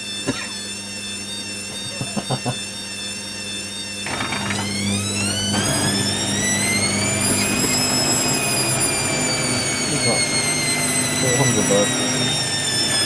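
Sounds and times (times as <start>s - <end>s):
washer drum motor whining: 3.9s - 13.0s.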